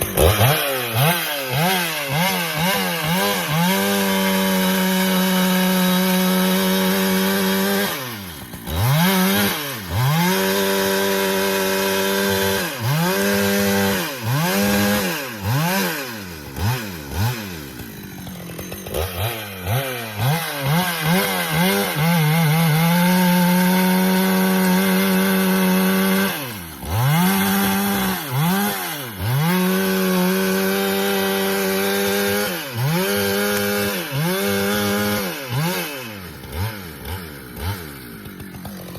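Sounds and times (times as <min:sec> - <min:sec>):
chainsaw revving and idling: 0:00.0 - 0:38.9.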